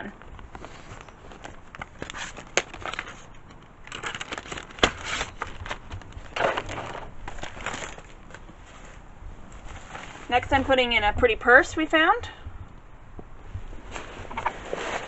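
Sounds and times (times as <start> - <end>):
packing crinkling and rustling: 0.2 - 10.6.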